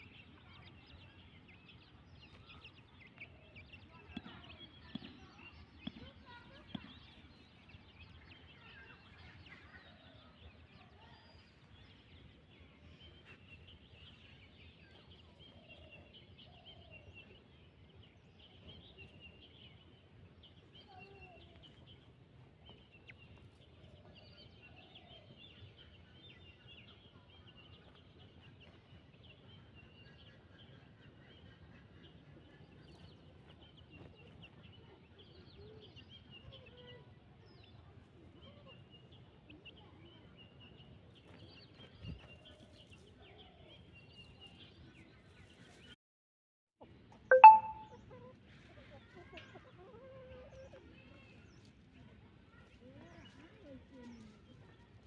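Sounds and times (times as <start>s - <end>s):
high thin chirps: 47.3s - 47.9s.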